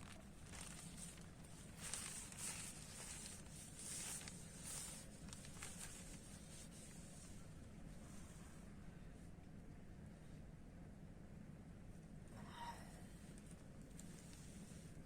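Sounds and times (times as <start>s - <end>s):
faint rustling and scuffing: 0.0s - 8.7s.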